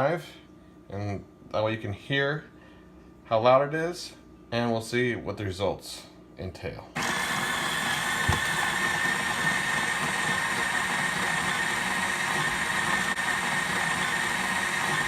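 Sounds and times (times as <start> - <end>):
coffee grinder grinding beans: 7.0 - 15.0.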